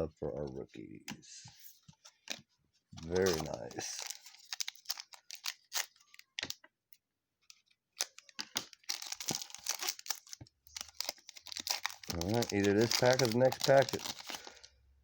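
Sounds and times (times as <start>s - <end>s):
cards clicking and crackling: 3.0s - 6.6s, 7.5s - 14.7s
wrapper crinkling and tearing: 3.0s - 6.6s, 8.0s - 14.7s.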